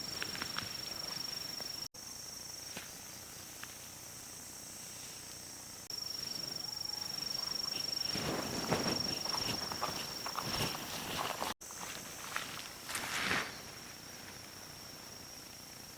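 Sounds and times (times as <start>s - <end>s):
insects trilling: 0.0s - 15.9s
footsteps in leaf litter: 8.0s - 14.4s.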